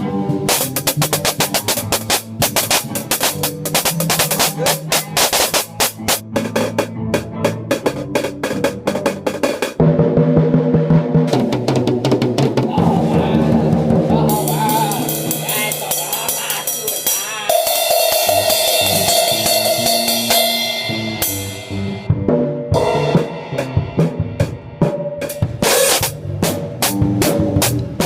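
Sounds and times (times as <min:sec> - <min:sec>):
drum kit played loudly: 0:00.0 - 0:28.0
cymbals crashing: 0:14.2 - 0:22.1, 0:25.2 - 0:26.2.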